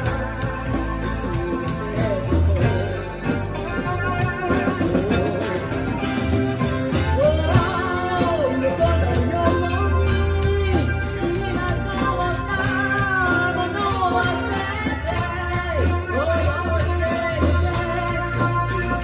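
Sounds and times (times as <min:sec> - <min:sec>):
bass line: 0:00.0 - 0:19.0
drum beat: 0:00.0 - 0:19.0
sliding melody line: 0:00.0 - 0:19.0.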